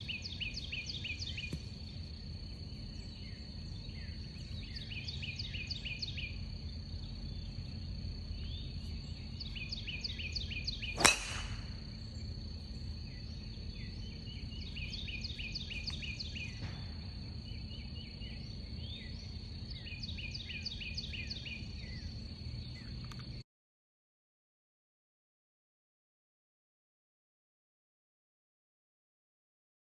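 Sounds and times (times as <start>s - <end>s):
bird chirping: 0.0s - 1.9s, 2.6s - 7.6s, 8.3s - 23.0s
steady high-pitched hum: 0.0s - 23.4s
golf driver striking ball: 11.0s - 11.9s.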